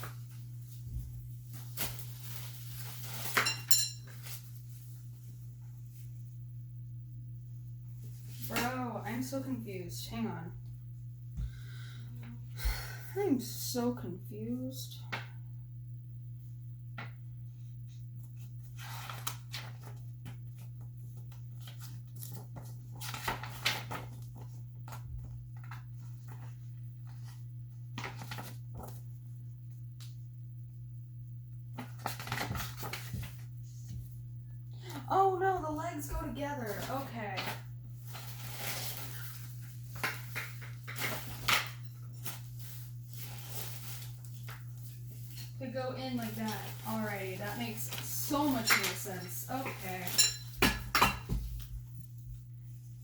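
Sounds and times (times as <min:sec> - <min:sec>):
rustling: 0:00.0 - 0:06.2, 0:36.6 - 0:50.6
steady low hum: 0:00.0 - 0:53.0.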